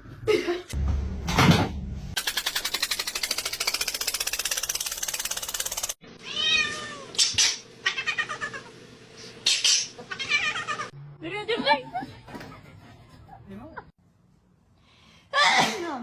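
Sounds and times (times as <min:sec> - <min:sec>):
rapid even pulsing sound: 0:02.2 - 0:06.0
cat meowing: 0:06.2 - 0:07.2, 0:10.1 - 0:10.9.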